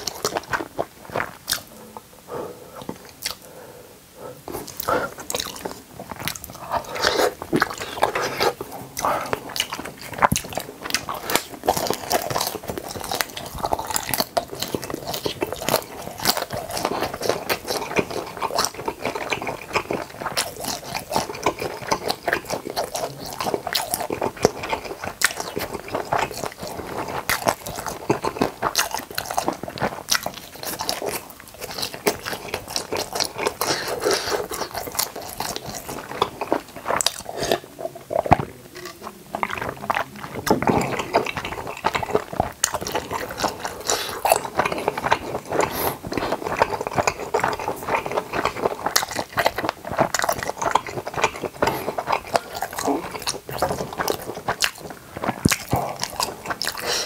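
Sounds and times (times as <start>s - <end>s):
chewing with wet mouth clicks: 0.0s - 1.7s, 2.8s - 3.5s, 4.5s - 57.0s.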